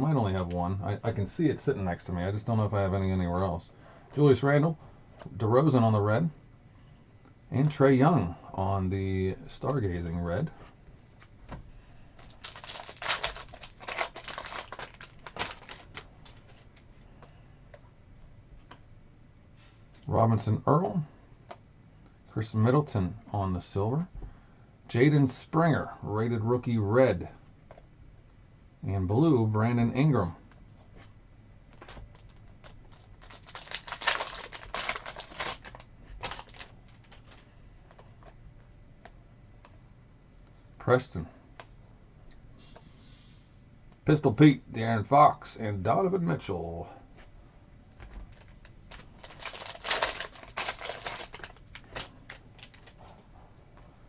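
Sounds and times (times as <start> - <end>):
foil wrapper crinkling and tearing: 12.2 - 16.4, 31.8 - 37.4, 48.3 - 53.0.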